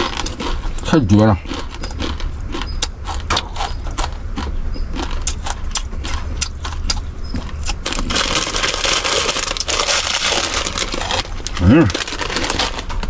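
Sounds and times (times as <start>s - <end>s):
dry noodles crunching: 0.0s - 13.0s
low hum: 0.0s - 13.0s
crinkling rustle: 7.8s - 13.0s.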